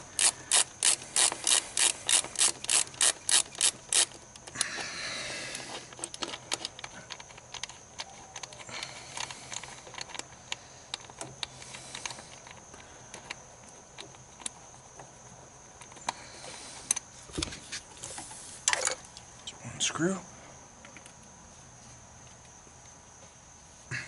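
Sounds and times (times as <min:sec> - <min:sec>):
hand ratchet clicking: 0:00.0 - 0:04.8.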